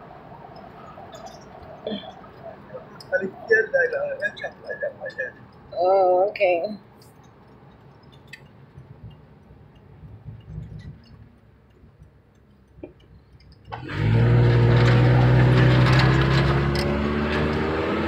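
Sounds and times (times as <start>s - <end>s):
road noise inside moving car: 0.0s - 18.0s
faint ticks: 7.0s - 13.8s
loud car engine accelerating: 13.7s - 18.0s.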